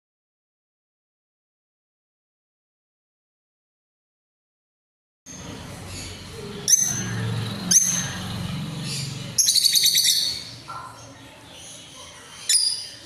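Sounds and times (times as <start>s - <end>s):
pet birds chirping: 5.3s - 13.0s.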